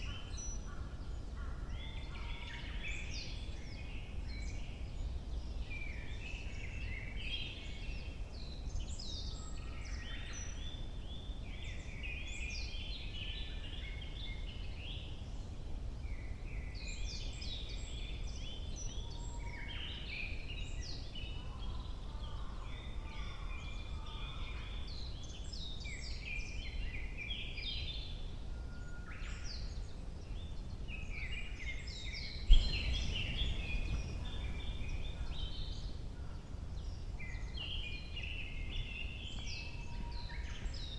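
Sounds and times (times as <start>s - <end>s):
songbirds chirping: 0.0s - 40.9s
steady low rumble: 31.9s - 37.2s.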